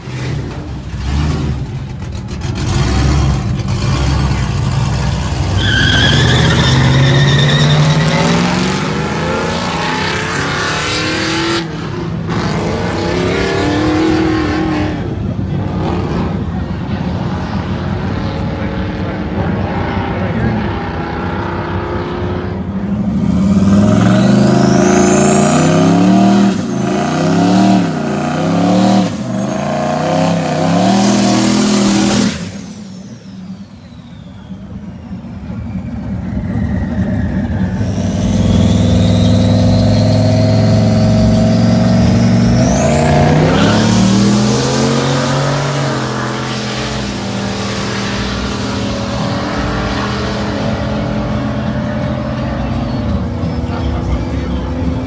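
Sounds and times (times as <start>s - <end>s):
race truck engines revving: 0.0s - 55.0s
high rising whistles: 23.3s - 50.7s.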